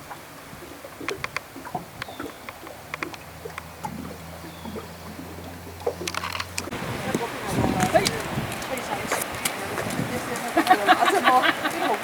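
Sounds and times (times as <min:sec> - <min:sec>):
waves splashing on shore: 0:05.2 - 0:12.0
small clicks and knocks: 0:06.0 - 0:06.7.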